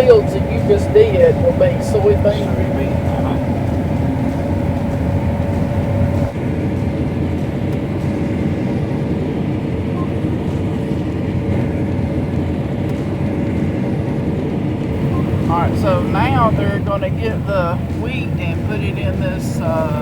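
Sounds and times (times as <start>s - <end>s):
combine harvester droning: 0.0s - 6.3s, 14.9s - 20.0s
faint steady whine: 0.0s - 6.3s, 14.9s - 20.0s.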